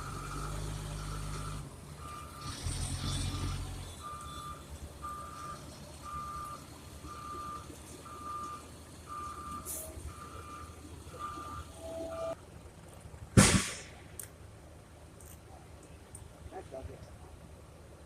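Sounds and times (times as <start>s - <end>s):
reversing alarm beeping: 0.0s - 12.4s
low engine rumble: 0.0s - 18.0s.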